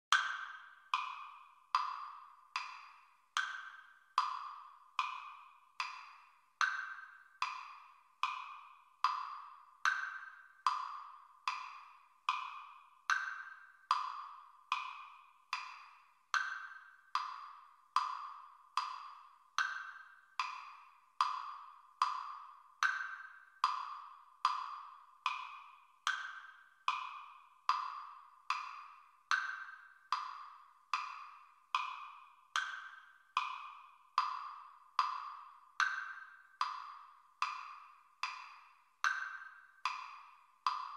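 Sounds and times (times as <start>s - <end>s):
metronome clicking: 0.1s - 40.9s.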